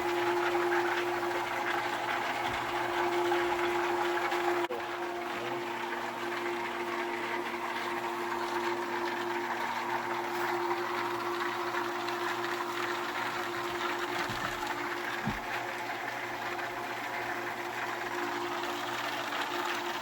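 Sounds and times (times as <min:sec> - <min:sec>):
electric water pump humming: 0:00.0 - 0:20.0
low thump: 0:15.2 - 0:15.5.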